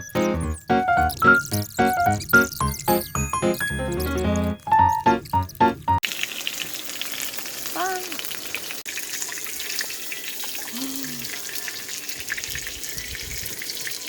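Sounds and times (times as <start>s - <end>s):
meat sizzling in a pan: 6.0s - 14.0s.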